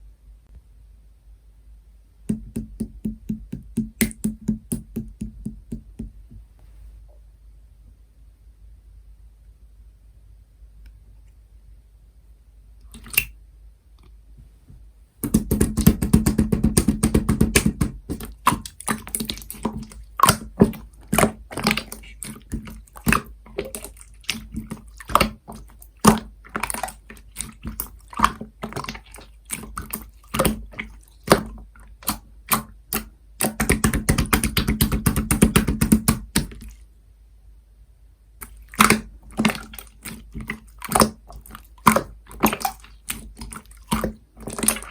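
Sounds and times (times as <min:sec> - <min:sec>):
slime squishing and popping: 0:15.2 - 0:36.8, 0:38.4 - 0:44.9.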